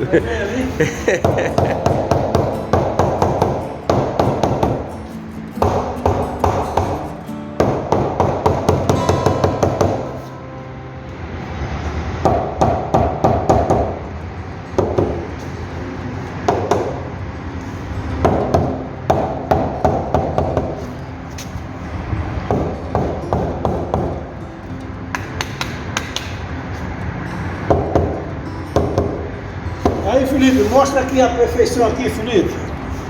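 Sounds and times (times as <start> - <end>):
background music: 0.0 - 33.0
hammer tapping: 1.2 - 4.9, 5.6 - 7.0, 7.6 - 10.4, 16.5 - 17.0, 18.2 - 20.8, 25.1 - 26.4.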